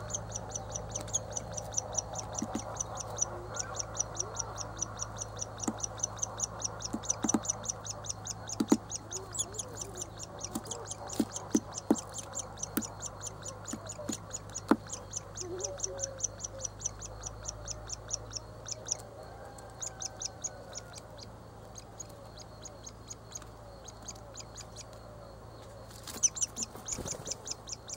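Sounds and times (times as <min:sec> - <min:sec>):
nestling high chirps: 0:00.0 - 0:27.9
sharp taps: 0:02.3 - 0:02.8, 0:05.6 - 0:05.9, 0:06.9 - 0:07.6, 0:08.5 - 0:09.0, 0:10.5 - 0:13.1, 0:13.7 - 0:15.0.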